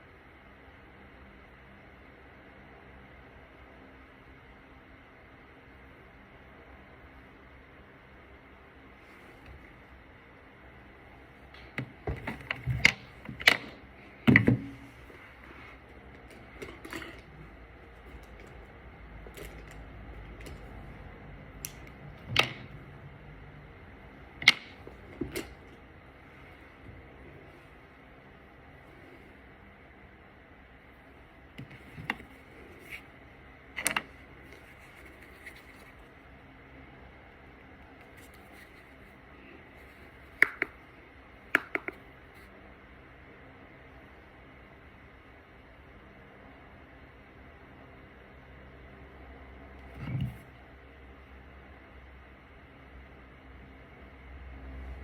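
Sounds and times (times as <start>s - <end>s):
makeup products clicking: 41.6s - 42.0s.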